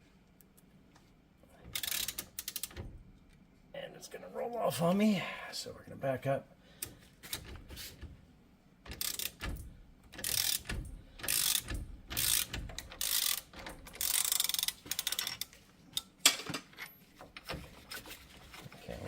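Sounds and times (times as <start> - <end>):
ratchet wrench clicking: 1.7 - 2.8, 8.9 - 9.4, 10.2 - 15.5.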